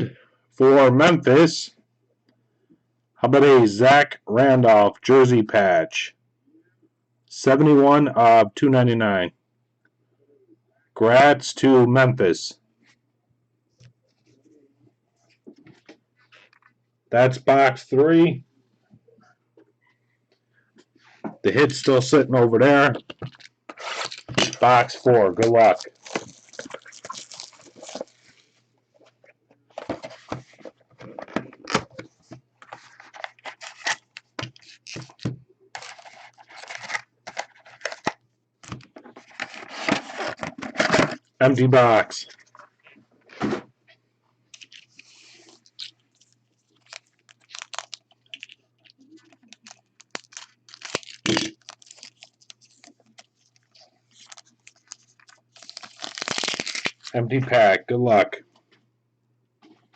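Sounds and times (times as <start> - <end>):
cards and cardboard rustling: 21.5 - 41.2, 44.5 - 57.1
plastic wrap crinkling: 23.0 - 28.5, 30.6 - 35.2, 35.8 - 40.4, 44.6 - 57.2.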